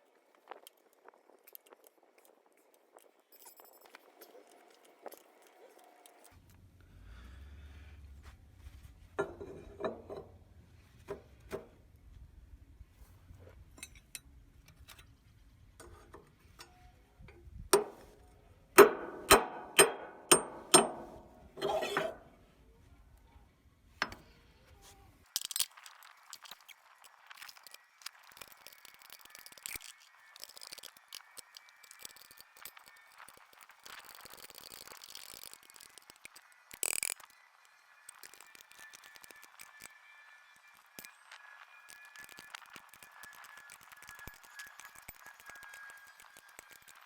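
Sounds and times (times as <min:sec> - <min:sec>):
scraping and clicking: 0:21.6 - 0:22.2, 0:38.1 - 0:40.0, 0:40.7 - 0:47.0.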